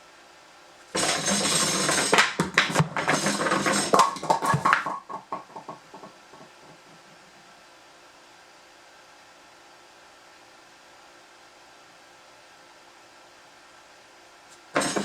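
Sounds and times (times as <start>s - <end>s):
firewood clattering down pipe: 1.0s - 7.2s, 14.8s - 15.0s.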